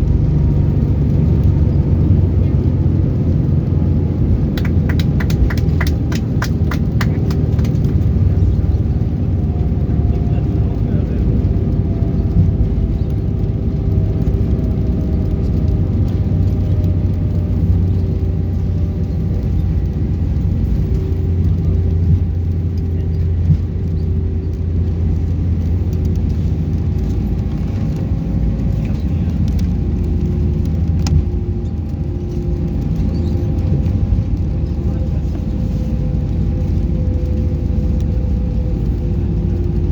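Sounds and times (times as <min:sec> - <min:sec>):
airplane cabin rumble: 0:00.0 - 0:39.9
thin engine tones: 0:00.0 - 0:39.9.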